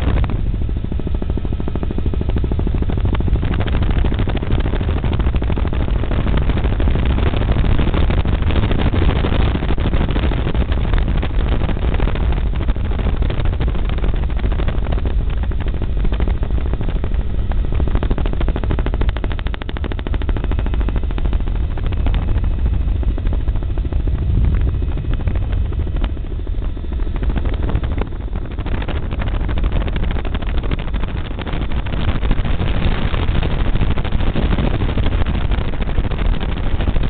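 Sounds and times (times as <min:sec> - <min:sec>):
helicopter engine and rotor: 0:00.0 - 0:37.0.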